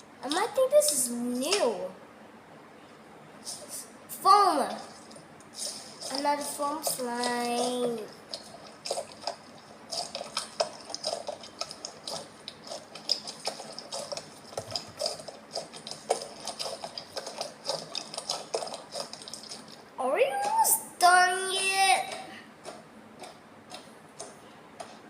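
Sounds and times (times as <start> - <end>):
slime crackling and popping: 5.5 - 19.8.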